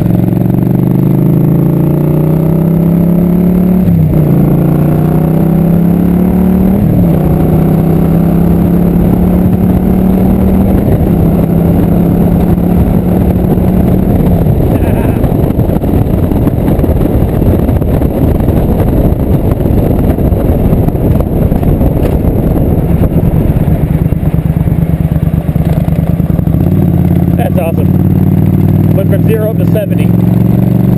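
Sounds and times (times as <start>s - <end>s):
motorcycle engine accelerating: 0.0s - 30.9s
wind rushing on microphone: 2.6s - 30.9s.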